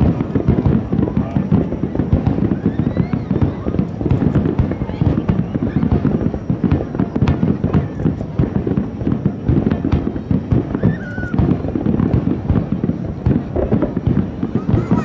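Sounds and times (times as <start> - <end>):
fireworks booming: 0.0 - 15.0
fireworks crackling: 0.0 - 15.0.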